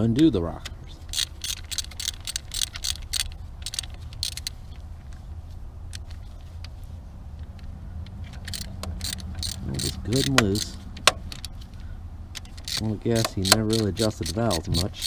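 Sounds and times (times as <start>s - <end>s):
low steady hum: 0.0s - 15.0s
wrench clicking on metal: 0.2s - 4.6s, 8.1s - 11.6s, 12.3s - 15.0s.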